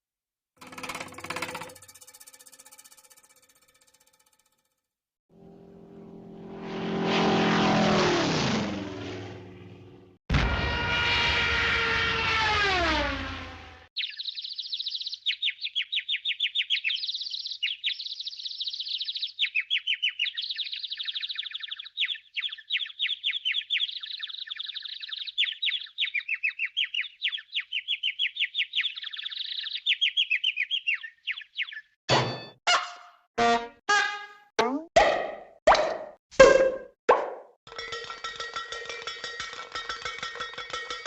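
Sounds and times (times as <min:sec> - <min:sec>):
bird singing rapid chirps: 0:14.0 - 0:32.0.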